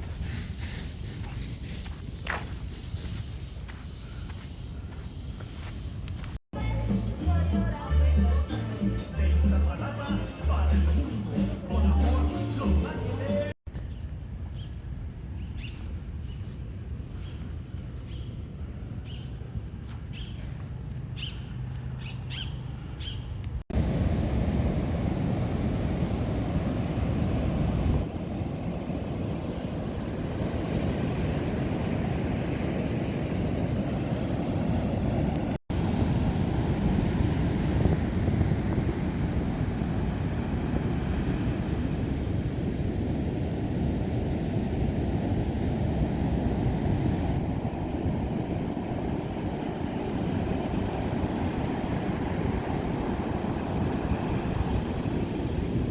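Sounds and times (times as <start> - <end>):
birds chirping: 21.1 - 23.4
wind on microphone: 23.0 - 55.9
ocean surf breaking: 23.7 - 55.9.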